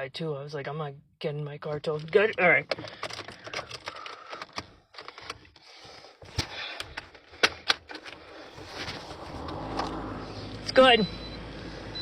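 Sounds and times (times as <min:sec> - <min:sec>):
car engine starting and running: 0:06.8 - 0:12.0.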